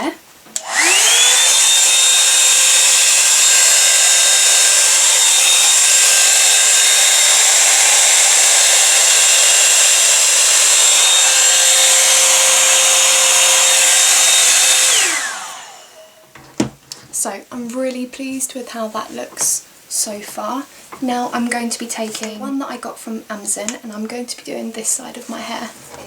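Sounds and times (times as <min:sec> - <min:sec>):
hot air brush blowing air: 0:00.6 - 0:16.2.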